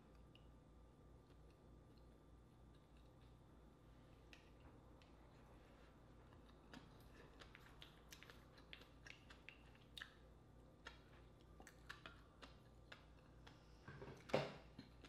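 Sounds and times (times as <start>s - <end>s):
wet chewing and mouth clicks: 6.2s - 13.8s.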